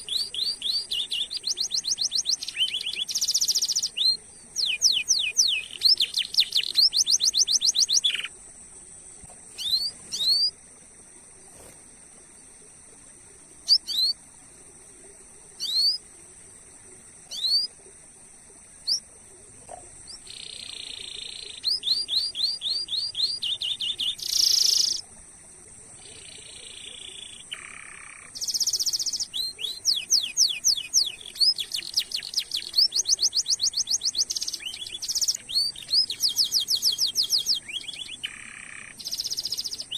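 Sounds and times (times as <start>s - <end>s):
canary singing: 0.0s - 8.4s, 9.6s - 10.5s, 20.1s - 25.0s, 26.2s - 39.9s.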